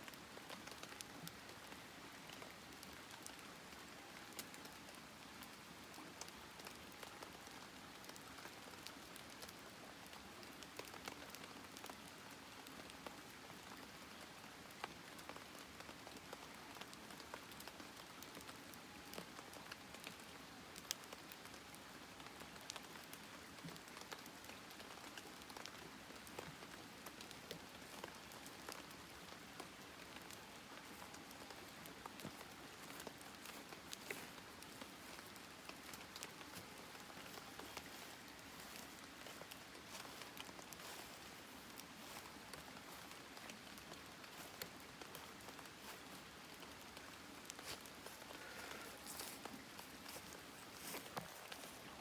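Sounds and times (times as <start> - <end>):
campfire crackling: 14.2 - 52.0.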